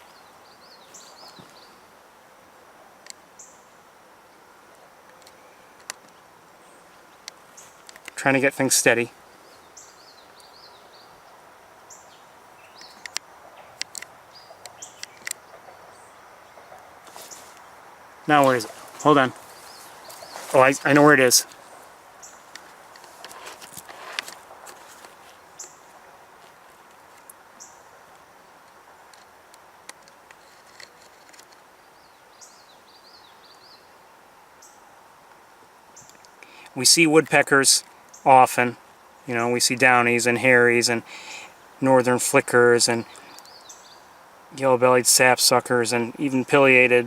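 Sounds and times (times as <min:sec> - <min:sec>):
bird chirps: 0:00.0 - 0:01.8, 0:09.3 - 0:17.7, 0:18.3 - 0:22.4
small birds chirping: 0:00.0 - 0:02.0, 0:03.0 - 0:28.2, 0:30.3 - 0:34.9, 0:35.9 - 0:47.0
outdoor background noise: 0:00.0 - 0:47.0.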